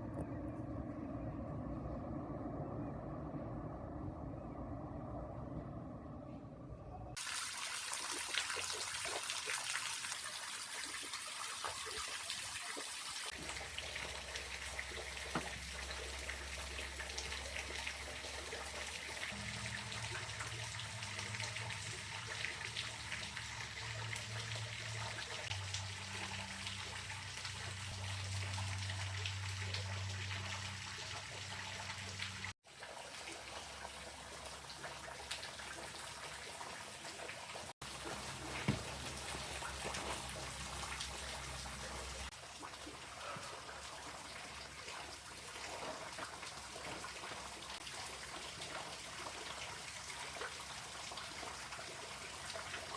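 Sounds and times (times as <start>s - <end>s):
low hum shifting pitch: 0.0s - 7.2s
trickling water: 7.1s - 52.9s.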